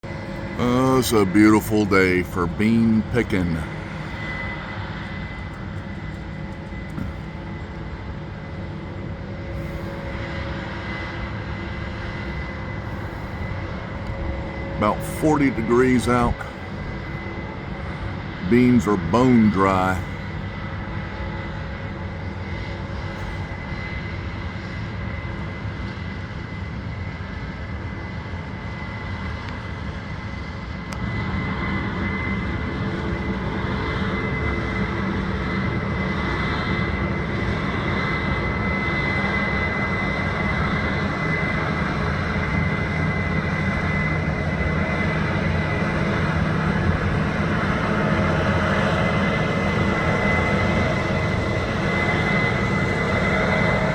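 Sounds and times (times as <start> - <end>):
combine harvester running: 0.1 - 4.3.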